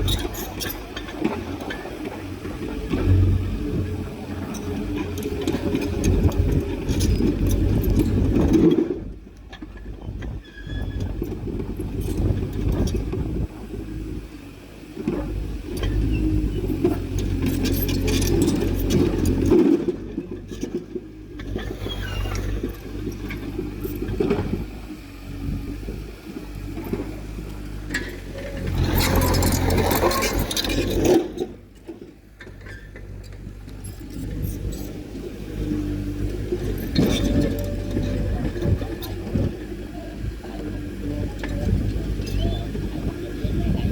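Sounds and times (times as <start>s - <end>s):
heavy diesel machinery engine: 0.0s - 43.9s
metallic clanking and scraping: 4.4s - 9.9s, 15.0s - 24.7s, 26.6s - 39.6s.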